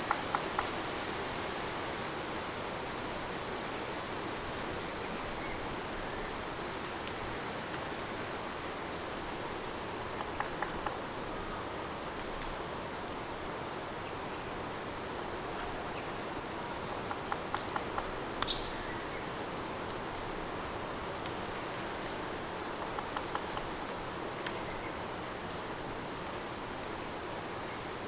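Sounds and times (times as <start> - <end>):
sharp tick: 17.6 - 18.6.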